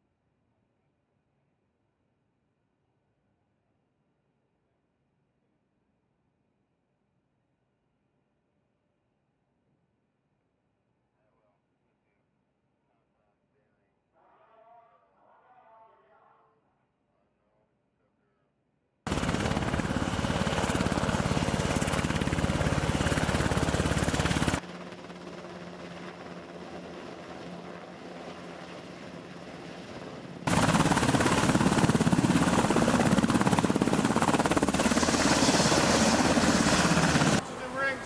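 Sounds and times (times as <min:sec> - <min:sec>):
helicopter rotors and engines: 0:19.1 - 0:38.0.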